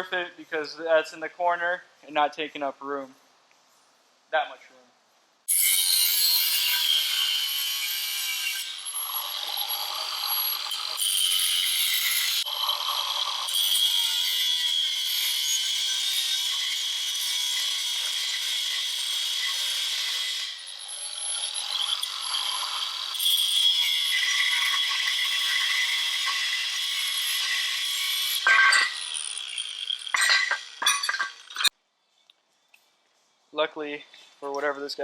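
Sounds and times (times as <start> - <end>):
power tool grinding metal: 5.5 - 31.7.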